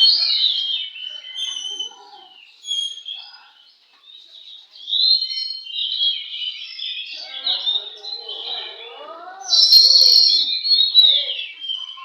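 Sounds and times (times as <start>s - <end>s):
bird singing whistled phrases: 2.6s - 3.3s, 9.4s - 12.0s.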